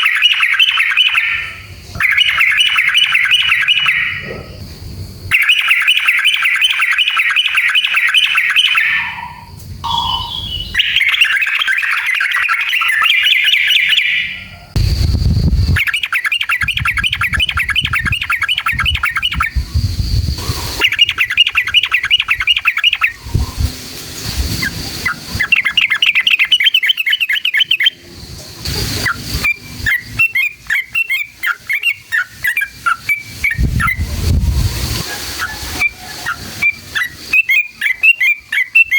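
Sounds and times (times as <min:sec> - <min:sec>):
bulbul chattering trills: 0:00.0 - 0:34.2, 0:34.9 - 0:38.9
low rumbles: 0:14.7 - 0:15.8, 0:17.0 - 0:21.4, 0:33.4 - 0:35.4.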